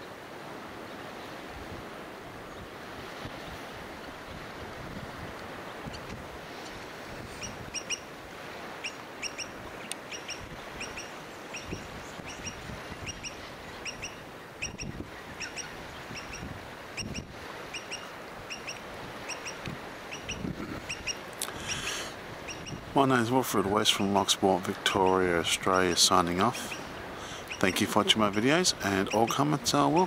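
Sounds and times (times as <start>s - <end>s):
water lapping: 0.0s - 30.0s.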